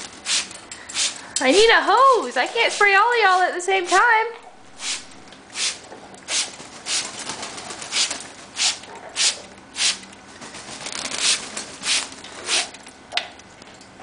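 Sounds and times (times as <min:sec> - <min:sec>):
spray bottle spritzes: 0:00.2 - 0:01.2, 0:04.8 - 0:07.1, 0:07.9 - 0:10.0, 0:11.0 - 0:12.7.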